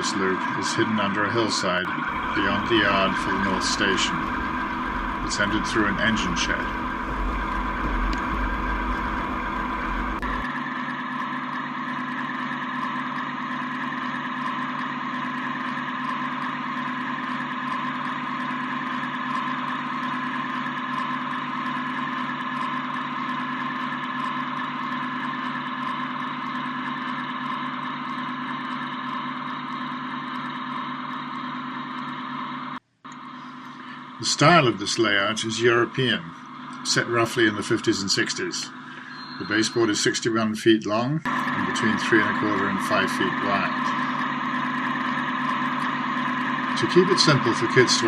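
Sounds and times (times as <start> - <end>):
model train humming: 0.0 - 10.5, 33.4 - 40.2, 41.3 - 48.0
deep rumble: 2.1 - 10.5.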